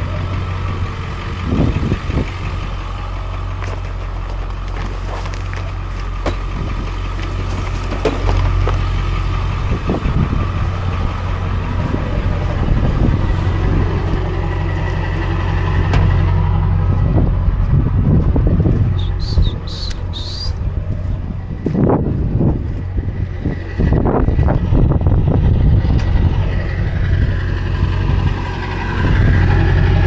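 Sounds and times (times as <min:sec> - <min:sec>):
truck engine low hum: 0:00.0 - 0:30.0
clicks and crunching knocks: 0:02.7 - 0:15.2.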